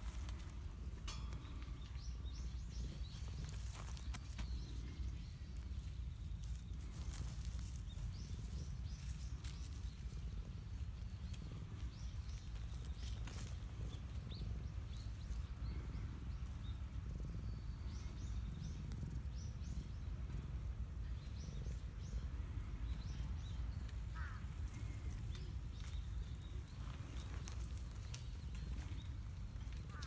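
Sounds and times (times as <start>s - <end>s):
low outdoor rumble: 0.0s - 30.0s
small birds chirping: 0.0s - 30.0s.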